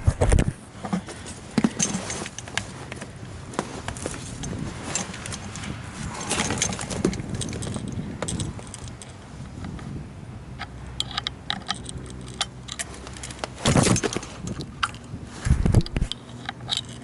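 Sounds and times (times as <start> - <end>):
steady low hum: 0.0 - 17.0
metallic tool clinks and rattles: 1.2 - 3.1, 3.7 - 9.2, 11.0 - 15.2, 15.8 - 17.0.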